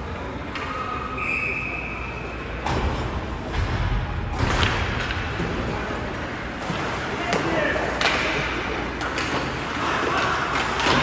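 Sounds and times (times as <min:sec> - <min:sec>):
referee whistle blast: 0:01.2 - 0:02.3.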